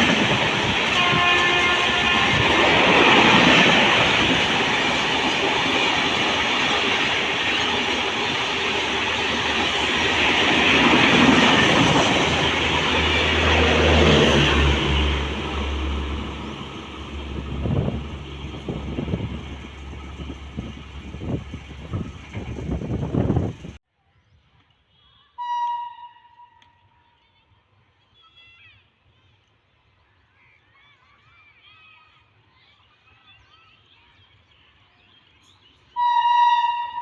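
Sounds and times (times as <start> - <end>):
gusty noise: 0.0 - 23.8
train passing at speed: 0.0 - 23.8.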